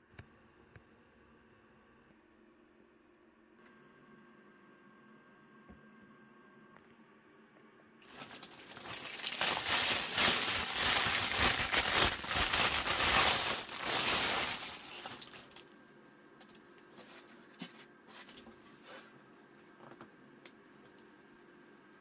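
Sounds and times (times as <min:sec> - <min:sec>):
crinkling rustling: 0:08.0 - 0:15.7.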